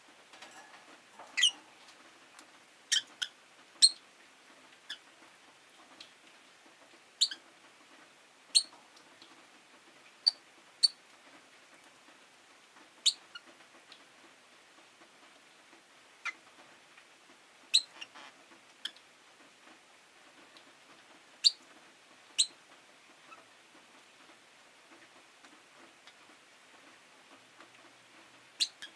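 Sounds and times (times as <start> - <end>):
lovebirds chirping: 1.3 - 1.6.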